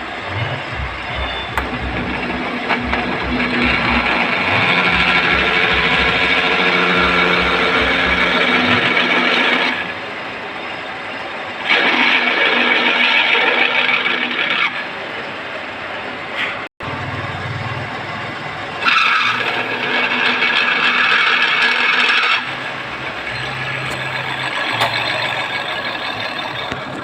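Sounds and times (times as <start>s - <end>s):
tractor engine revving: 0.0s - 10.1s, 18.8s - 27.0s.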